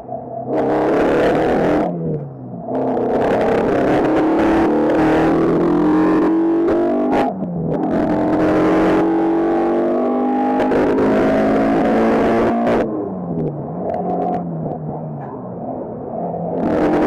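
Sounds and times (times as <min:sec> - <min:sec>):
race car engine accelerating: 0:00.5 - 0:17.0.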